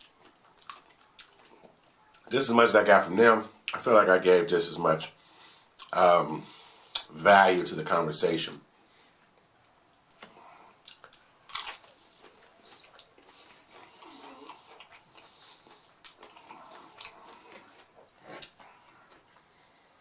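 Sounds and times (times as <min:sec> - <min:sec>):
person chewing: 0:00.0 - 0:02.3, 0:10.1 - 0:19.9
crisp crunching bites: 0:10.9 - 0:13.2.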